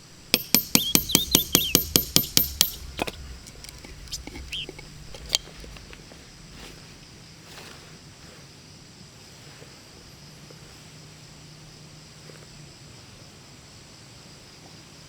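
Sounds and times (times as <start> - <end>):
low steady hum: 0.0 - 8.3
insects chirping: 0.0 - 15.0.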